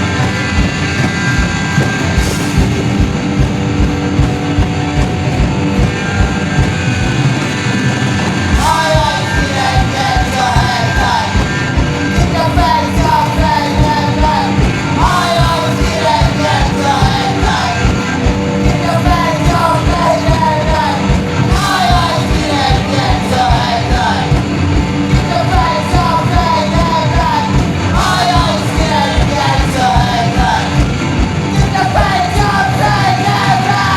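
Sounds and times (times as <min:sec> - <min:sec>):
punk rock band playing: 0:00.0 - 0:33.9
shouted vocals: 0:08.6 - 0:33.9.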